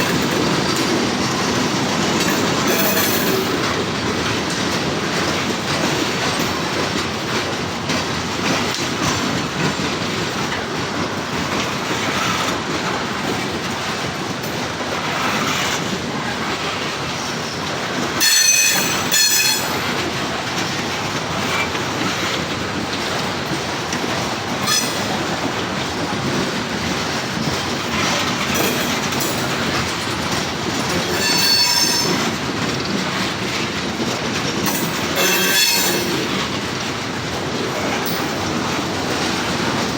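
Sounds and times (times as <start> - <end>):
freight train rumbling past: 0.0 - 39.9
high-pitched wheel squeals: 18.2 - 19.8, 24.6 - 25.3, 31.0 - 32.3, 34.7 - 36.4.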